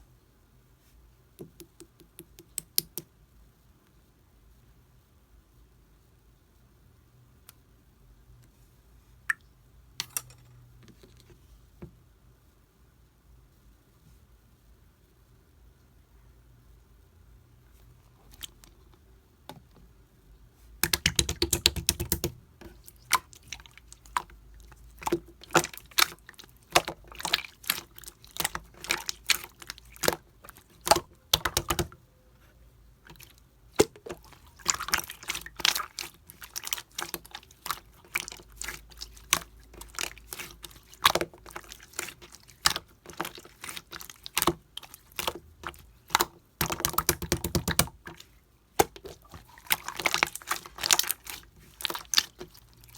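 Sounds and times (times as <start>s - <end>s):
slime squeezed by hand: 33.1s - 52.9s.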